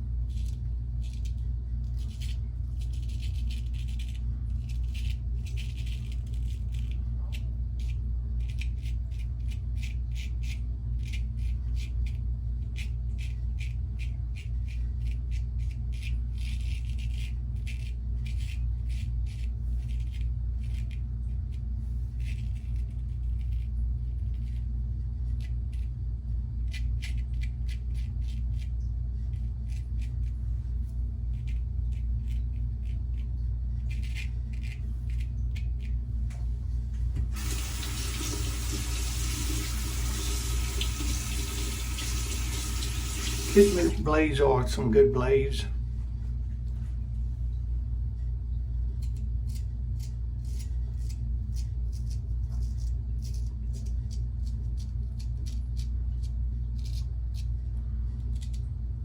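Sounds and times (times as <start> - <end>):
low hum: 0.0 - 59.0
razor scraping stubble: 37.3 - 44.6, 49.0 - 57.6.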